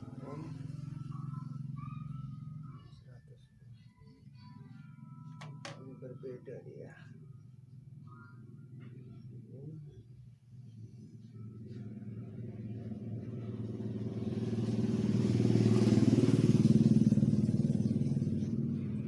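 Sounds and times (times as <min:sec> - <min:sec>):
engine passing: 0:00.0 - 0:02.9, 0:10.5 - 0:19.0.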